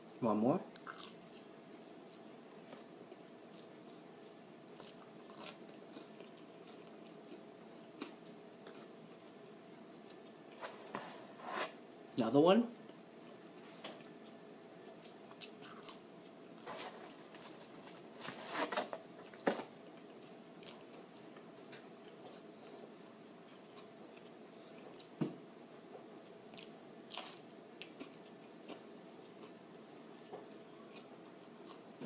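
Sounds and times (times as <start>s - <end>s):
person chewing crunchy fries: 0.8s - 1.4s, 4.8s - 8.9s, 15.0s - 21.0s, 26.5s - 29.6s.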